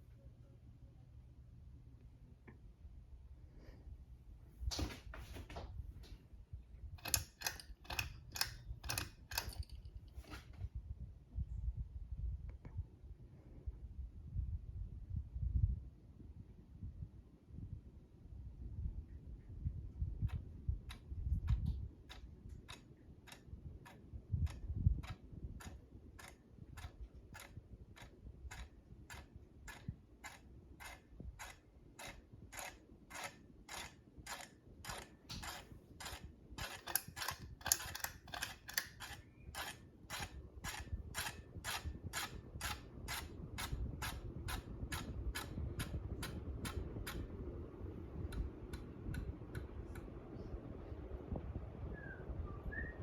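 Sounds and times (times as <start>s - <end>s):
ceiling fan clicking: 6.9s - 10.6s, 19.9s - 53.0s.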